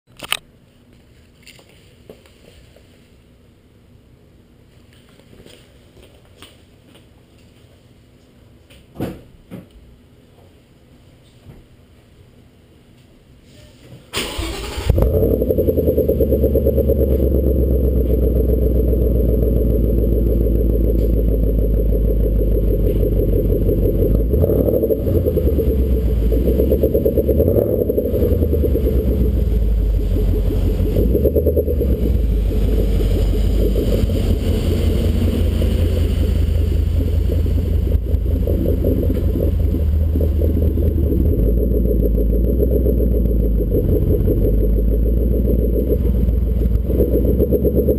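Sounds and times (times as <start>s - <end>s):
car engine starting: 14.2s - 47.9s
car engine idling deep rumble: 14.9s - 47.9s.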